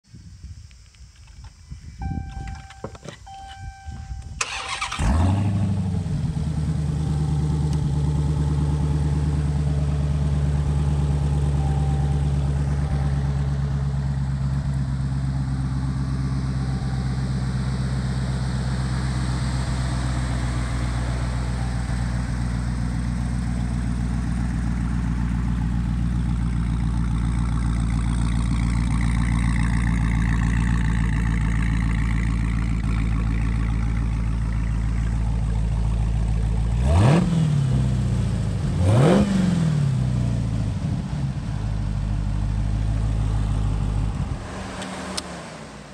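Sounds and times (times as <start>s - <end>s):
car engine starting and idling: 0.6s - 45.9s
short electronic beeps: 2.0s - 4.8s.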